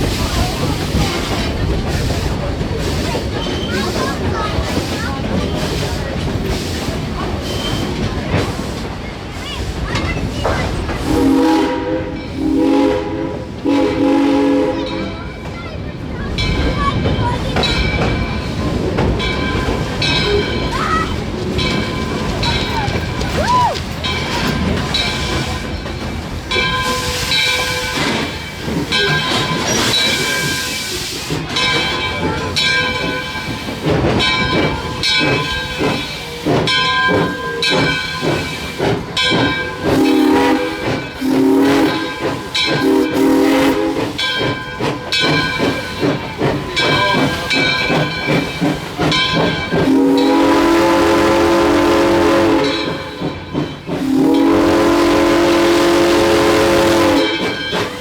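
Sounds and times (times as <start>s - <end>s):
steam locomotive chuffing: 0.0s - 58.0s
steam whistle blasts: 11.0s - 15.0s, 39.9s - 44.2s, 49.9s - 53.0s, 54.0s - 57.6s
steam hiss: 26.6s - 50.5s.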